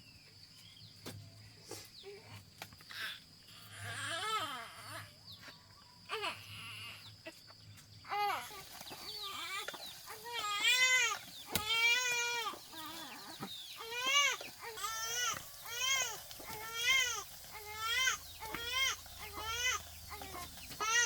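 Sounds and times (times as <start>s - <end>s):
infant crying: 3.7s - 5.1s, 6.1s - 7.0s, 8.1s - 8.6s, 9.3s - 21.0s.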